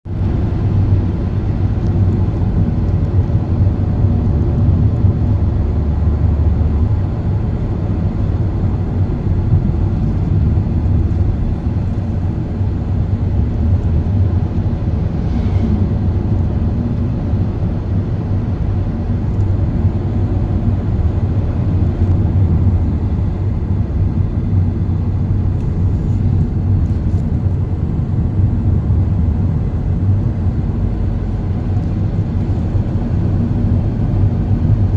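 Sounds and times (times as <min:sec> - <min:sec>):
car driving on road: 0:00.1 - 0:34.9.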